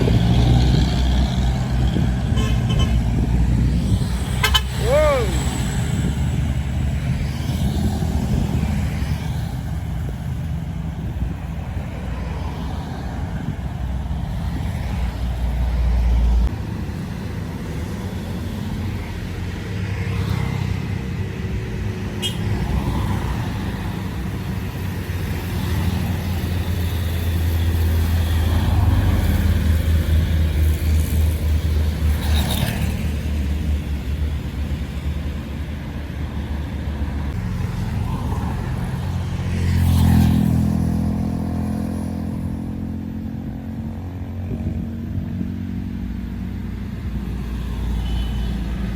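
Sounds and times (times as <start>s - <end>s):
heavy truck engine rumbling: 0.0s - 17.9s.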